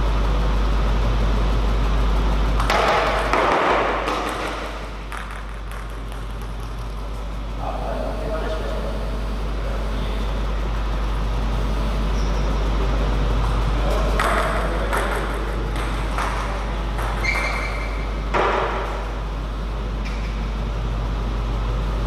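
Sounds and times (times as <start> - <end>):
low hum: 0.0 - 22.0
table tennis ball clicks: 3.4 - 7.0.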